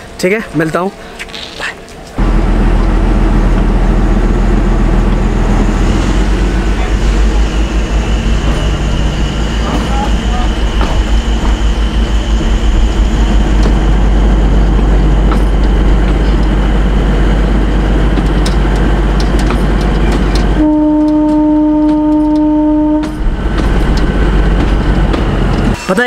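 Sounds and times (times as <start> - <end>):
diesel train engine and rail rumble: 0.0 - 26.0
train horn: 20.6 - 23.2.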